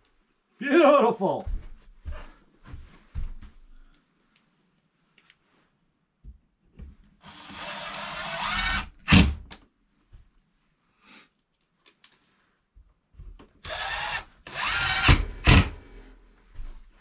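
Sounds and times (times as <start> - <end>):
power drill running: 7.2 - 9.4, 13.6 - 16.0.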